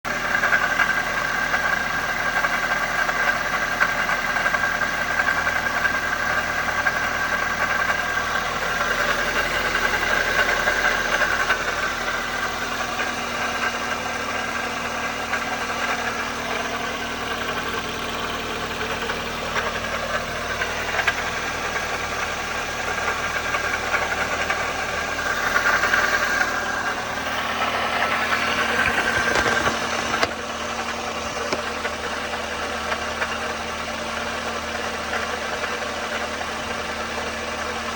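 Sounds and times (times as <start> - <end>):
car engine running: 0.0 - 37.9
engine rattle: 0.0 - 37.9.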